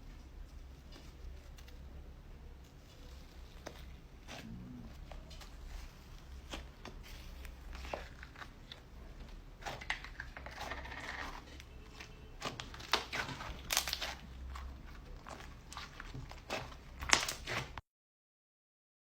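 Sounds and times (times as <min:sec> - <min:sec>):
slime crackling and popping: 0:02.7 - 0:17.8.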